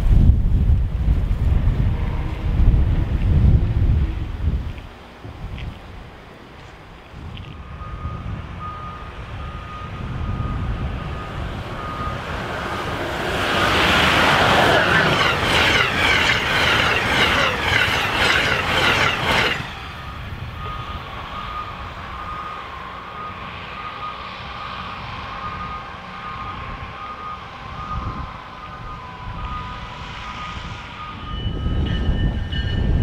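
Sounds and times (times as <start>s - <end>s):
faint electronic beep: 7.6s - 12.2s, 20.0s - 31.8s
train wheels clattering over rails: 11.7s - 21.6s.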